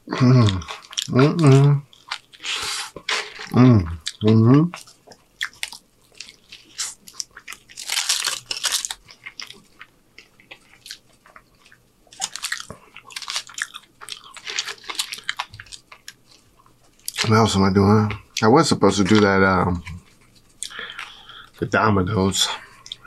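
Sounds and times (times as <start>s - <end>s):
person chewing: 0.0s - 17.3s, 19.1s - 21.6s, 22.7s - 23.0s
foil crackling: 5.6s - 9.8s.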